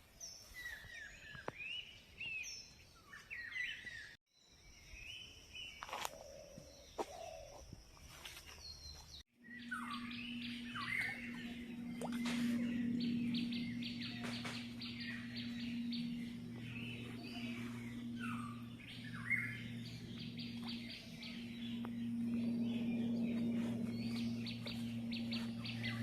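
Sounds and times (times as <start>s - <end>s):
birds chirping and chattering: 5.7s - 26.0s
steady low hum: 8.8s - 26.0s.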